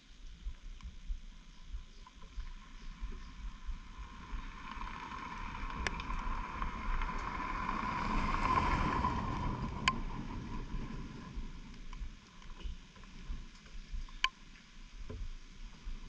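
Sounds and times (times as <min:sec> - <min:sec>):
wind rushing over microphone: 0:02.3 - 0:12.2.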